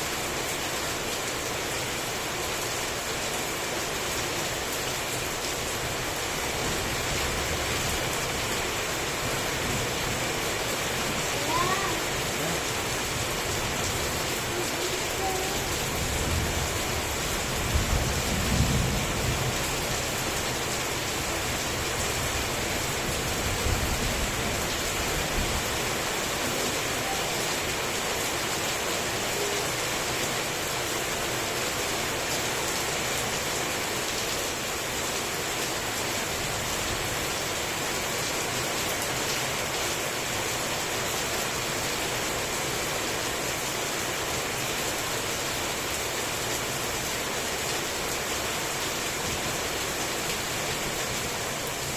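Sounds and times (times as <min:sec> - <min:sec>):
heavy rain falling: 0:00.0 - 0:51.9
thunder rumbles: 0:15.8 - 0:20.6.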